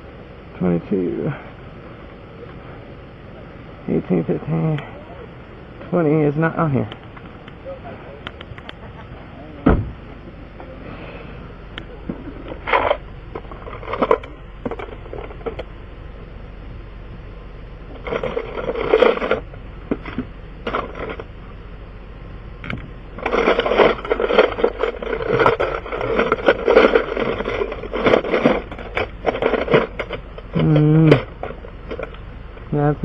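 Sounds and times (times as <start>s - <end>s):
metal tools clattering in toolbox: 18.0s - 19.4s, 23.2s - 30.2s.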